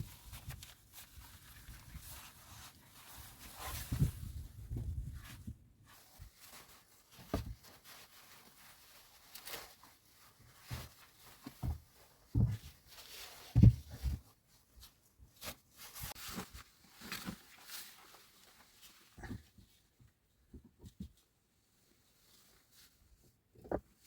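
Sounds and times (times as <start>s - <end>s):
knocks thuds and scrapes: 7.2s - 7.8s, 10.6s - 12.8s, 13.4s - 14.3s.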